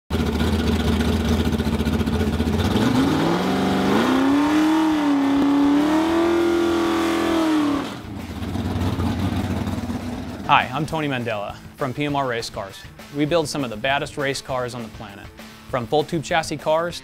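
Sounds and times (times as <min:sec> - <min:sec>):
race car engine idling and revving: 0:00.1 - 0:10.5.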